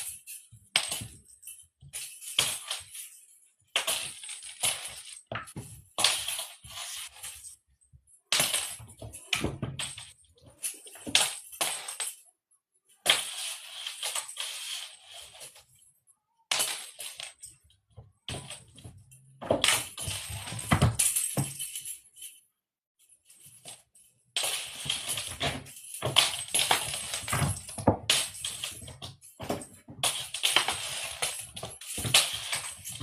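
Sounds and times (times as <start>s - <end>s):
jingling rattling cat toy: 24.4s - 33.0s.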